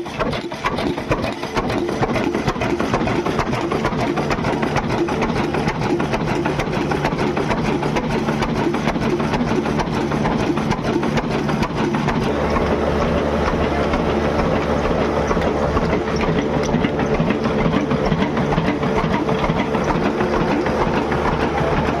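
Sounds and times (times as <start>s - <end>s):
engine running with fast beat: 0.0s - 22.0s
low hum: 11.2s - 22.0s.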